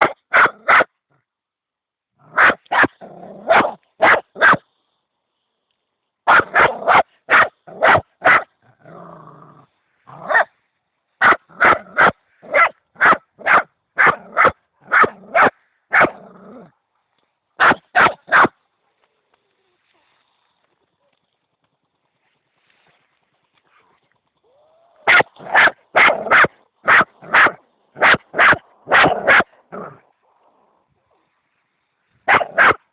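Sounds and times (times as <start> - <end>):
dog barking: 0.0 - 0.9, 2.3 - 4.6, 6.3 - 8.5, 10.1 - 10.5, 11.2 - 16.2, 17.6 - 18.6, 25.0 - 30.0, 32.3 - 32.9
dog growling: 3.0 - 3.6, 8.6 - 10.4, 16.1 - 16.8, 28.9 - 31.3.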